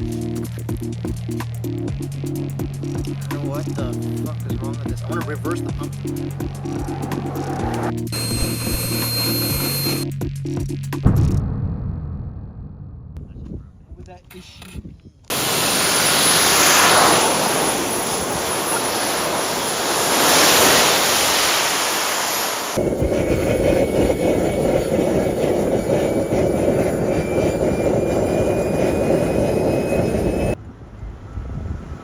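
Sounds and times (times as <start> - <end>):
jet engine rushing and whining: 2.0 - 10.0, 15.3 - 32.0.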